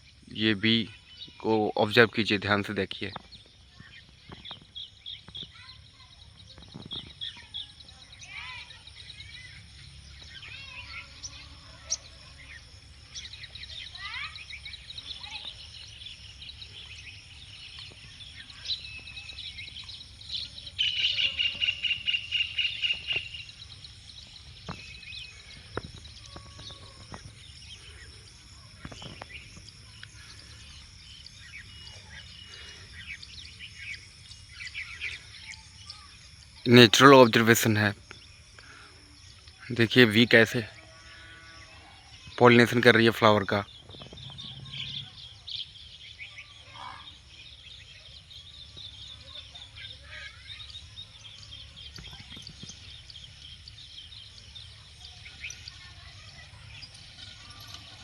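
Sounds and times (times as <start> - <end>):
bird chirps and calls: 0.0 - 58.0
insect trill: 0.0 - 58.0
low rumble: 44.1 - 45.2.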